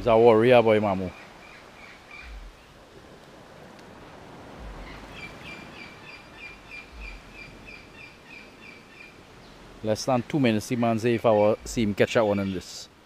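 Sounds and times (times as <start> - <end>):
faint outdoor hiss: 0.0 - 13.0
bird chirping: 1.1 - 2.8, 4.6 - 12.7
soft low thuds: 2.2 - 2.8, 4.4 - 5.8, 6.4 - 7.9, 11.6 - 12.0.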